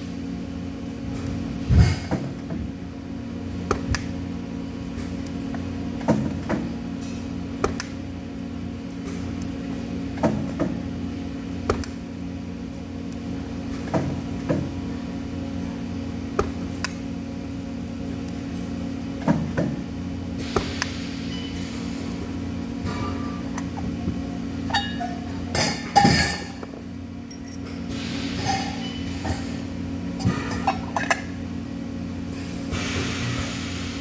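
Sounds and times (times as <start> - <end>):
electrical machine hum: 0.0 - 34.0
metal parts clinking: 27.3 - 27.7.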